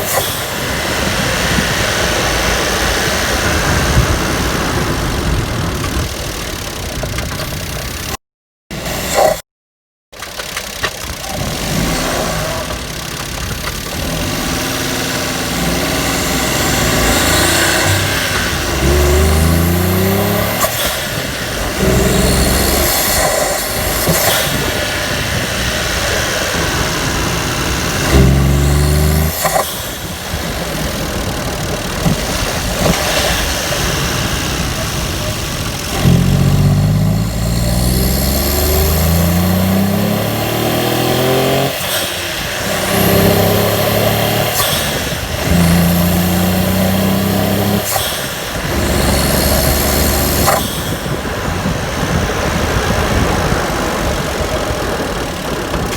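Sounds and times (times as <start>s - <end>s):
small engine revving: 0.0s - 9.4s, 10.2s - 55.9s
blow-off valve hissing whoosh: 14.0s - 51.7s.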